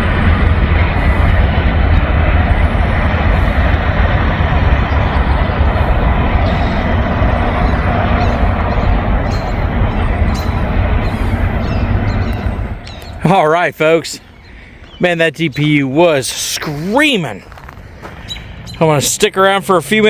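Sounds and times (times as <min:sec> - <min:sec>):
freight train rumbling past: 0:00.0 - 0:20.0
thin steady whine: 0:00.0 - 0:20.0.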